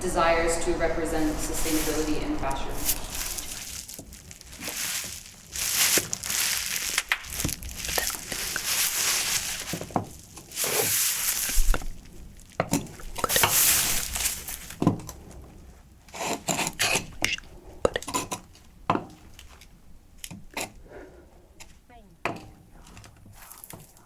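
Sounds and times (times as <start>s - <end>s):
trash being crumpled and crushed: 2.6s - 15.8s.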